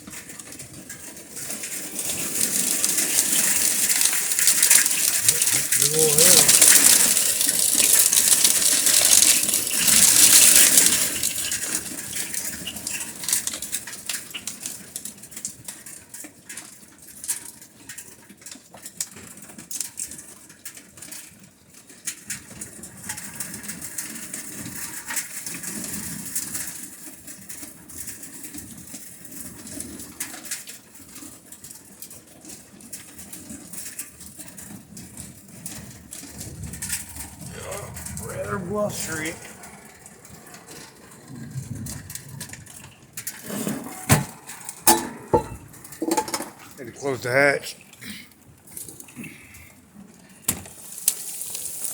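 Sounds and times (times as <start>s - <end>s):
hailstones ticking: 0.0s - 20.4s, 22.1s - 47.4s, 48.0s - 51.9s
heavy rain downpour: 1.4s - 14.8s, 35.6s - 44.9s, 50.5s - 51.9s
gusty wind: 36.1s - 46.8s.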